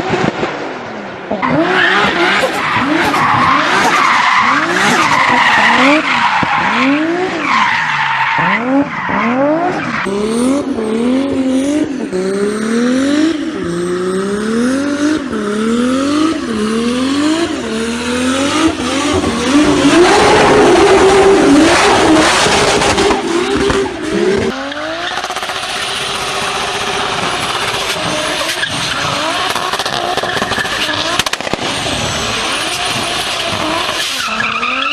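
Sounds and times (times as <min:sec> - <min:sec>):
car engine revving: 0:01.3 - 0:34.9.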